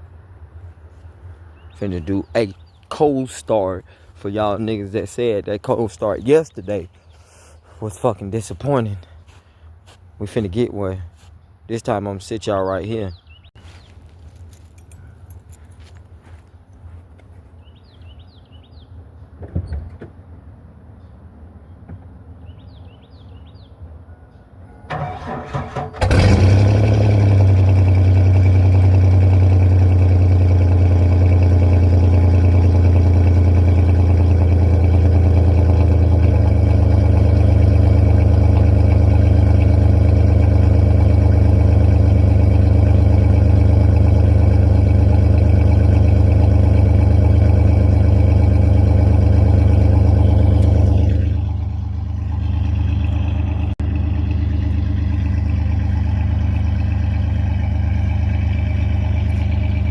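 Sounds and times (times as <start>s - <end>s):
truck engine idling: 24.9s - 59.9s.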